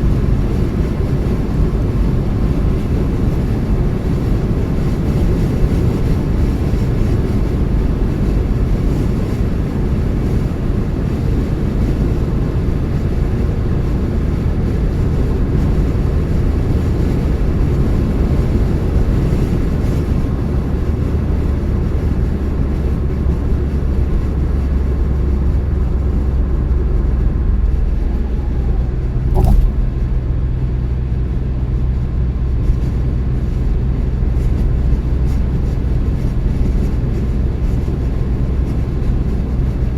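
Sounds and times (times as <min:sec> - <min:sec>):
car engine and tyre rumble: 0:00.0 - 0:39.9
low engine hum: 0:00.0 - 0:39.9
sharp knock: 0:29.3 - 0:30.1.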